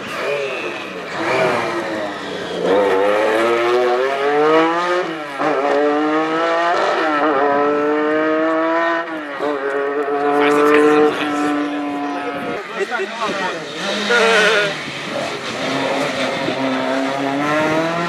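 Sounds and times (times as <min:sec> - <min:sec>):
rally car engine accelerating: 0:00.0 - 0:18.0.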